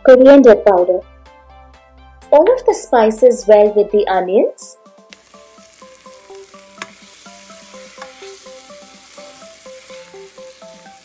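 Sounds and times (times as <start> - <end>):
soft background music: 0.0 - 11.0
food sizzling in hot oil: 5.2 - 11.0
spoon stirring in pan: 5.7 - 11.0
spoon clicking against pan: 6.8 - 7.0.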